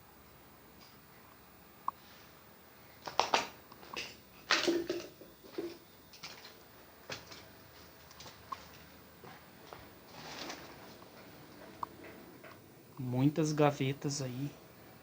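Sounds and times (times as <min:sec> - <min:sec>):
footsteps crunching on debris: 0:04.5 - 0:11.0.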